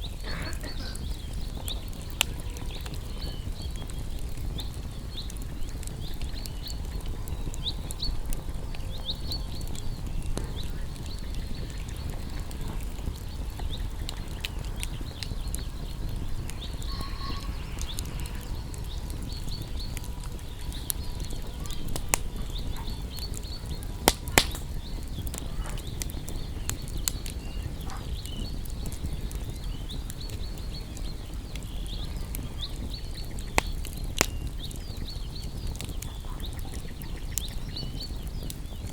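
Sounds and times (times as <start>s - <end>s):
campfire crackling: 0.0s - 38.9s
sharp pops of fire: 0.0s - 38.9s
faint high chirps: 6.2s - 28.6s.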